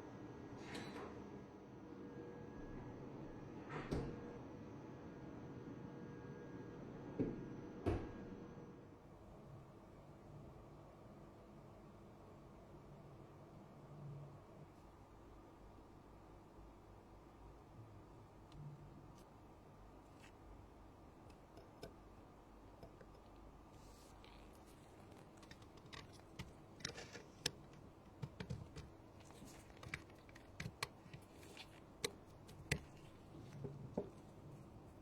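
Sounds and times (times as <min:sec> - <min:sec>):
hand tools clicking and tapping: 0:21.3 - 0:22.0, 0:24.6 - 0:34.7.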